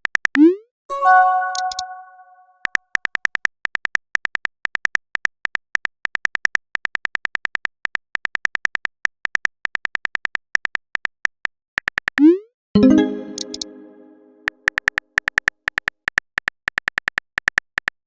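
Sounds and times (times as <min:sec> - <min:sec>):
keyboard typing clicks: 0:00.4 - 0:02.8, 0:12.8 - 0:16.0.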